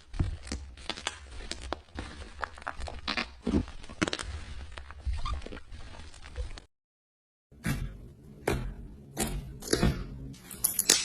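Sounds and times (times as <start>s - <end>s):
slime squishing and popping: 0.0s - 6.7s.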